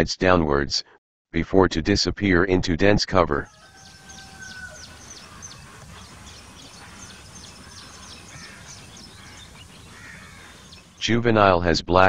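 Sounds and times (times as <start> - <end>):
birds chirping: 3.4 - 11.0.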